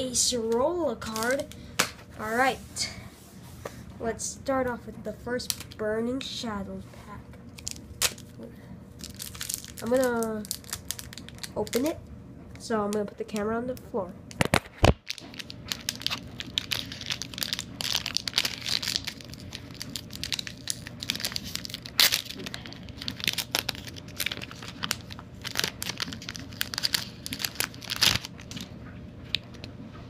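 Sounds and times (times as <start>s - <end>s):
foil wrapper crinkling and tearing: 5.4s - 5.8s, 7.6s - 8.4s, 9.0s - 12.0s, 14.3s - 28.7s.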